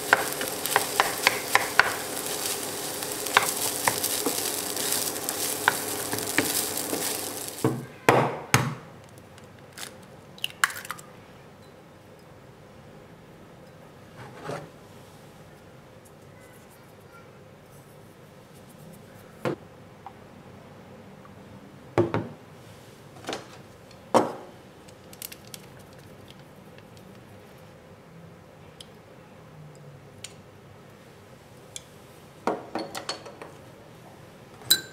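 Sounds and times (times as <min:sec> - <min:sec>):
spatula tapping: 0:00.0 - 0:07.7
food sizzling in a frying pan: 0:00.0 - 0:07.8
faint clicks and handling noises: 0:24.8 - 0:27.6.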